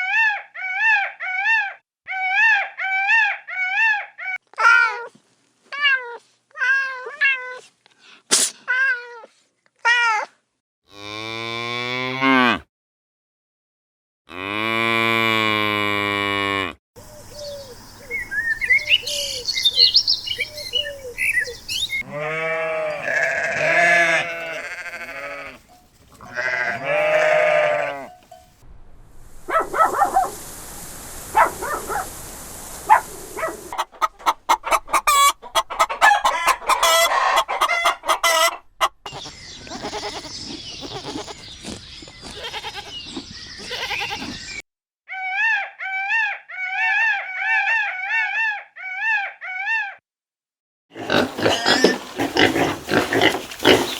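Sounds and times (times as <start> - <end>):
high chirping: 17.0 - 22.0, 39.1 - 44.6
wavering bleats: 22.0 - 28.3, 39.1 - 41.4, 43.6 - 44.4
fast clucking: 32.9 - 39.3.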